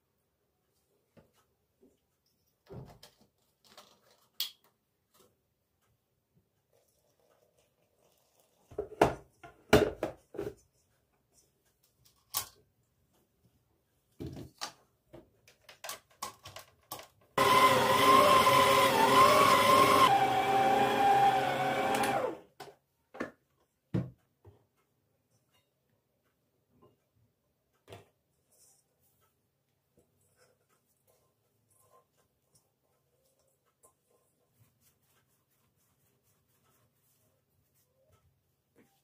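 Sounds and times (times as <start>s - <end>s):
electric blender motor whine: 17.4s - 22.4s.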